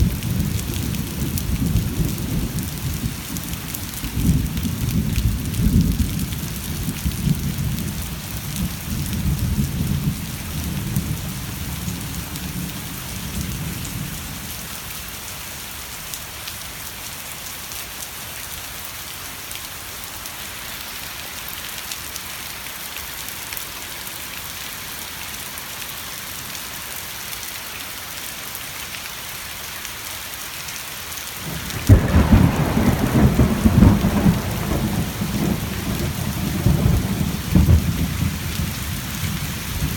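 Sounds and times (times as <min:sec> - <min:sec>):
steady rain falling: 0:00.0 - 0:39.9
rolling thunder: 0:31.4 - 0:39.9
loud thunder clap: 0:31.5 - 0:38.4.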